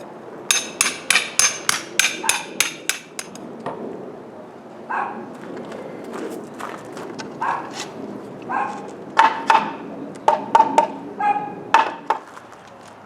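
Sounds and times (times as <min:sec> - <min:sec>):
hammer striking metal: 0:00.5 - 0:03.4.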